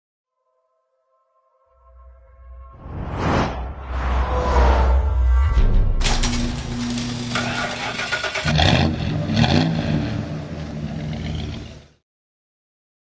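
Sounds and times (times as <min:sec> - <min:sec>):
car engine starting and revving: 0:06.0 - 0:12.0.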